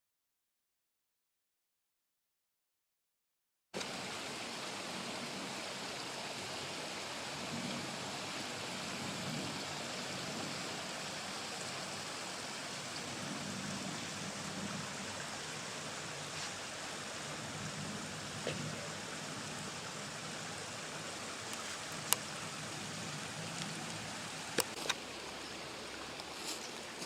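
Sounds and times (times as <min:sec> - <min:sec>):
faint ticks: 0:21.5 - 0:22.3.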